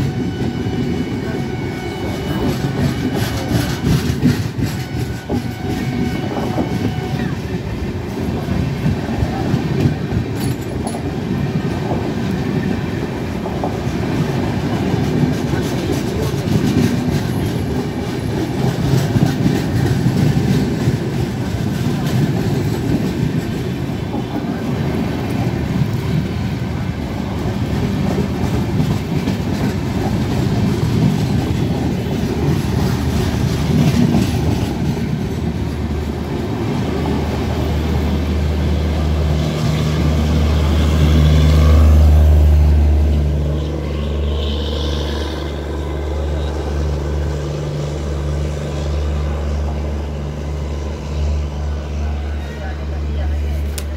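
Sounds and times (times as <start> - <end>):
train wheels clattering: 2.0 - 7.3, 8.0 - 26.5, 27.3 - 38.3.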